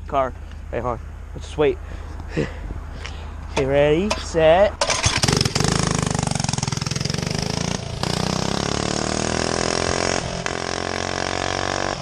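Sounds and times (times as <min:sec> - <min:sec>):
kart engine revving: 0:04.8 - 0:12.0.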